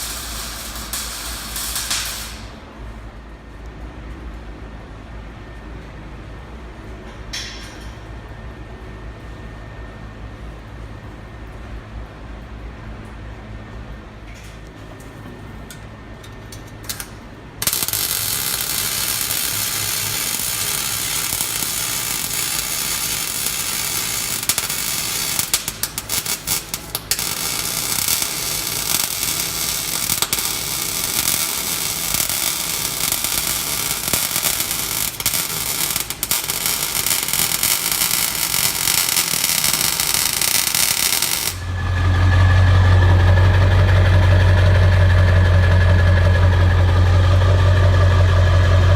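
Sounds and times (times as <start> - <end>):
torch hissing: 17.6 - 41.7
diesel engine idling: 41.6 - 48.9.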